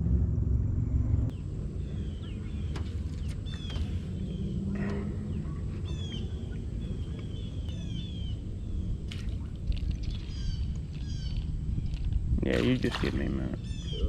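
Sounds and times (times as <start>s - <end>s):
steady low rumble: 0.0s - 14.0s
small birds chirping: 1.3s - 14.0s.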